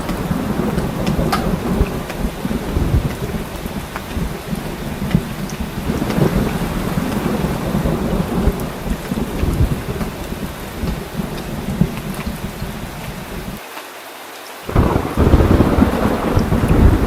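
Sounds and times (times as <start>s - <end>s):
low rumble of thunder: 0.0s - 13.6s, 14.7s - 17.0s
heavy rain falling: 0.0s - 17.0s.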